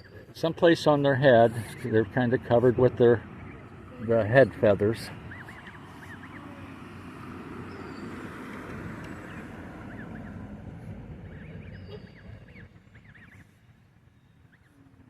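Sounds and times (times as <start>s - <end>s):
goslings peeping: 0.0s - 6.9s, 9.1s - 13.5s
steady low rumble: 0.3s - 14.7s.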